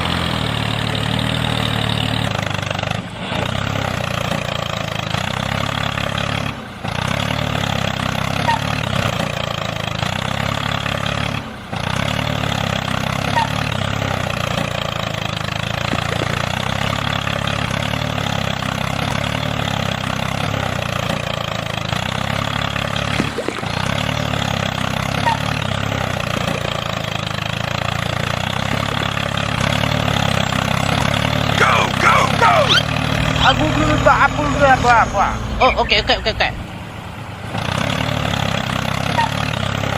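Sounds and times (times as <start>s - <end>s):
small engine idling: 0.0s - 39.9s.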